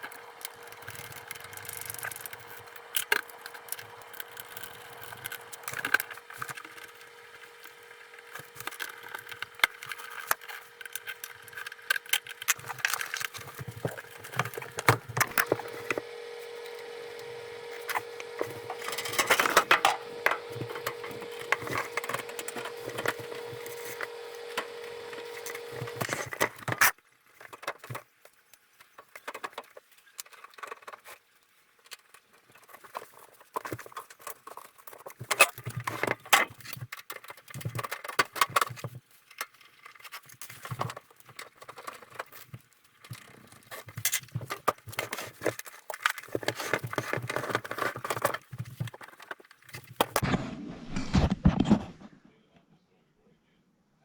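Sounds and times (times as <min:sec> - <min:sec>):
steady hum: 0:12.7 - 0:26.1, 0:50.1 - 0:52.5.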